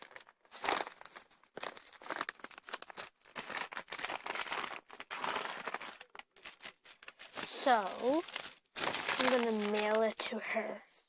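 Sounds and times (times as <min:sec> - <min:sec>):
packaging bag crinkling: 0:00.0 - 0:10.2.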